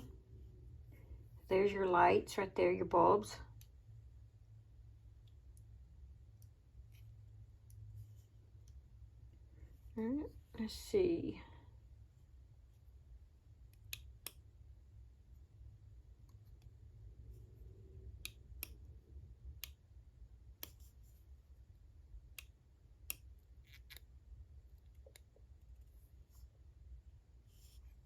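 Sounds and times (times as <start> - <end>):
low steady hum: 0.0 - 28.0
faint clicks and taps of device: 13.7 - 14.5, 18.1 - 19.8, 20.5 - 21.0.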